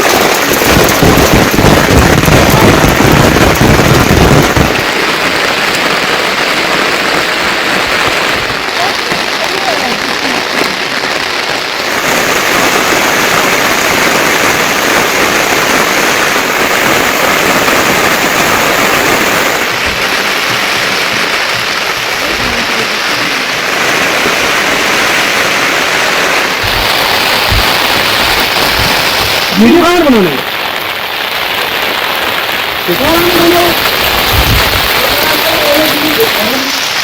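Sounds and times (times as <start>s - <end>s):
heavy rain falling: 0.0s - 37.0s
dull low thuds: 19.2s - 23.1s, 26.6s - 29.4s.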